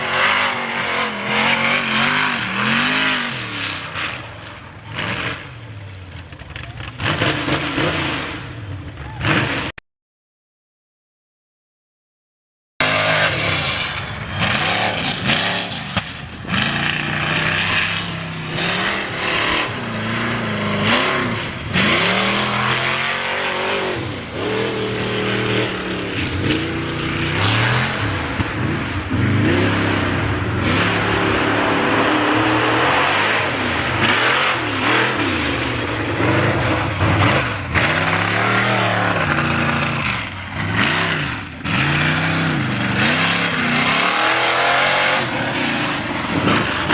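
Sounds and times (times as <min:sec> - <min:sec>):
race vehicle engine revving: 0:00.0 - 0:09.7, 0:12.8 - 0:46.9.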